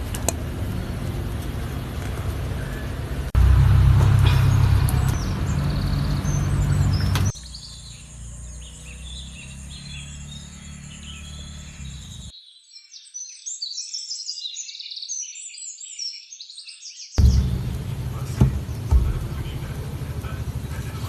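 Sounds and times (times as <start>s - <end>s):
birds chirping: 0.0s - 21.0s
loud low rumble: 0.4s - 7.3s, 17.2s - 21.0s.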